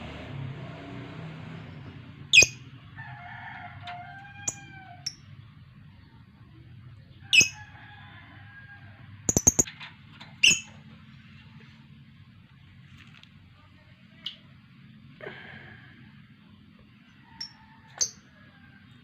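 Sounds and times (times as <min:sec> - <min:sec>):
lovebird chirping: 0:01.7 - 0:02.6, 0:07.3 - 0:07.6, 0:09.3 - 0:09.7, 0:10.4 - 0:10.7.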